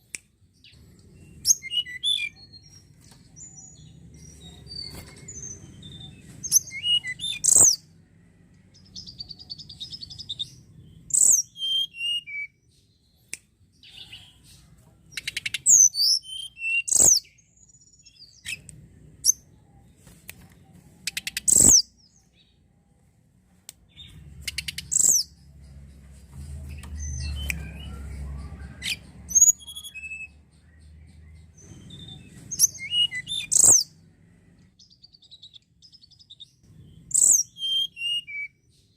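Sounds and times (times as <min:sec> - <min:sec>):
bird chirping and trilling: 0:00.6 - 0:08.0, 0:08.8 - 0:12.7, 0:15.1 - 0:19.6, 0:21.0 - 0:22.6, 0:23.9 - 0:26.0, 0:26.7 - 0:34.0, 0:34.8 - 0:38.8.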